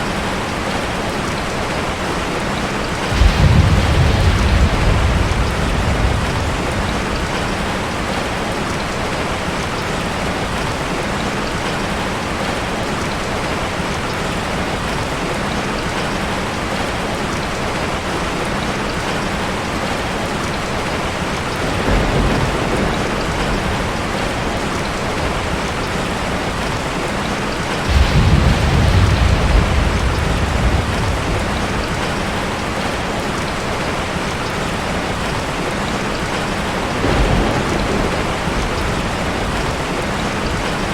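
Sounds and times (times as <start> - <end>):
heavy rain: 0.0 - 40.9
thunder rumble: 3.0 - 8.6, 21.5 - 33.1, 36.7 - 40.9.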